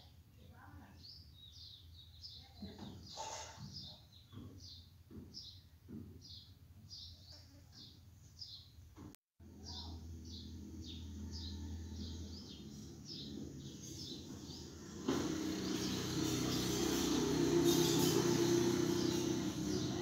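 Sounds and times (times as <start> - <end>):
small bird chirping: 9.6 - 14.8.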